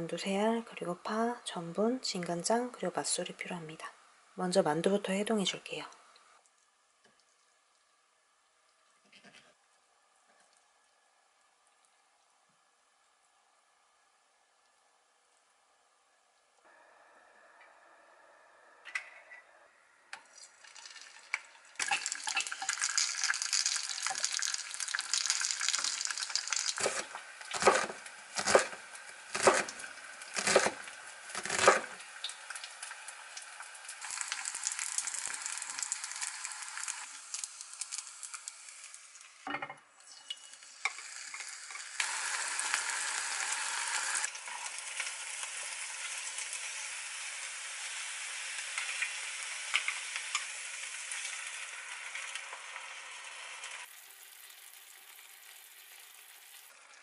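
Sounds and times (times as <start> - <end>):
dumplings sizzling in hot oil: 20.2 - 57.0
knife chopping on wooden board: 29.4 - 29.7.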